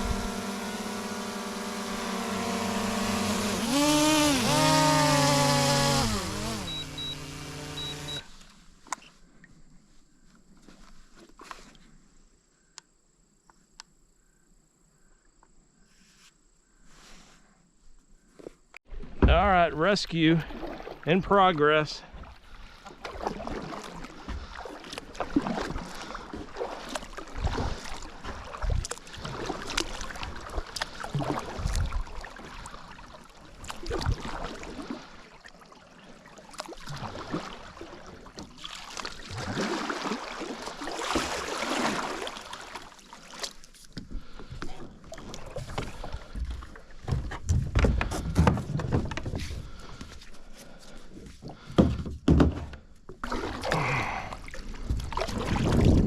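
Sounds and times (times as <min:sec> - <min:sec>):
water splashing: 0:20.2 - 0:43.7, 0:53.2 - 0:56.0
knocks against kayak hull: 0:51.7 - 0:52.8.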